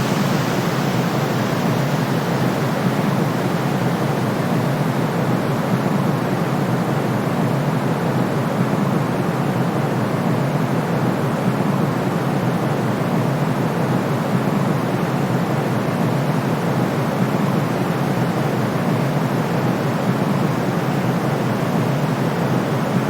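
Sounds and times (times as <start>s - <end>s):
low muffled white noise: 0.0s - 5.9s.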